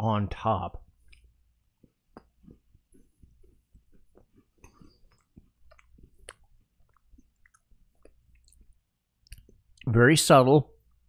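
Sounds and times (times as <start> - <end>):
crunchy cookie chewing: 1.0 - 9.7.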